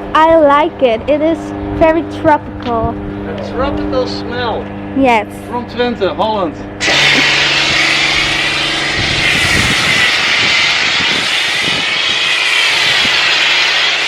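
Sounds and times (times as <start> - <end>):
motor and pump hum: 0.0 - 14.0
pressure washer spray hissing: 6.8 - 14.0.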